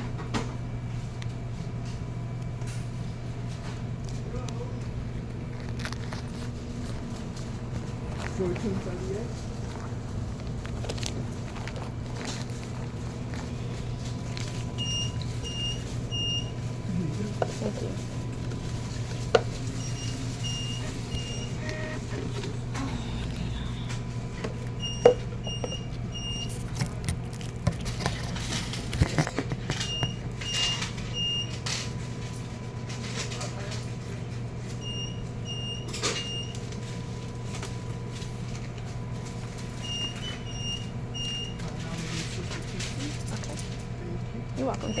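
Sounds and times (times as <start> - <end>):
steady low hum: 0.0 - 45.0
electronic alarm beeping: 14.8 - 16.6, 19.8 - 22.2, 24.8 - 26.6, 39.8 - 41.6.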